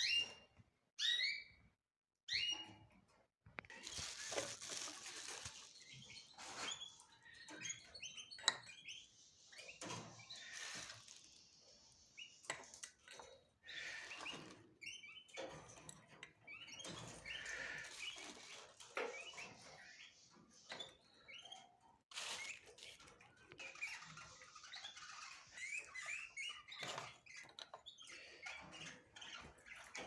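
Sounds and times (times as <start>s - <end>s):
cage birds chirping: 0.0s - 30.0s
clicks and scratches: 3.4s - 8.8s.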